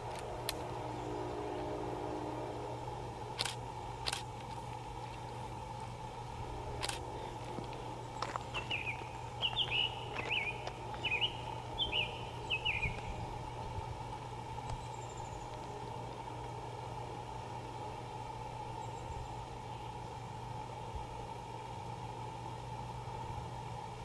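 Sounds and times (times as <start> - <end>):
faint low drone: 0.0 - 24.0
songbird singing two-note phrase: 8.6 - 13.0.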